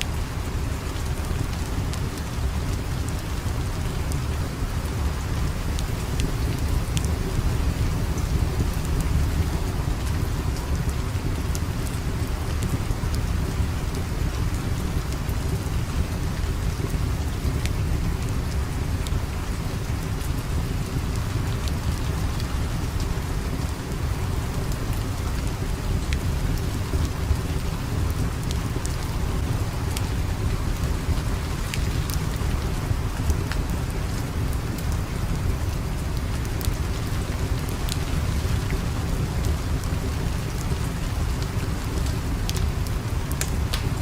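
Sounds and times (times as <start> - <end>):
steady rain: 0.0 - 44.0
small sharp crackles: 43.4 - 44.0.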